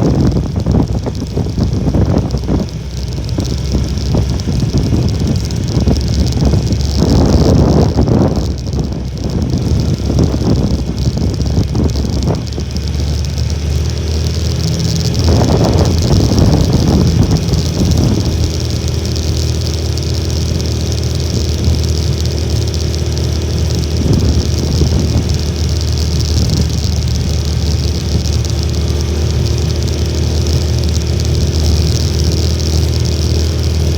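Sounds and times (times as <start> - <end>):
small motorcycle engine running: 0.0 - 33.9
wind buffeting microphone: 0.0 - 33.9.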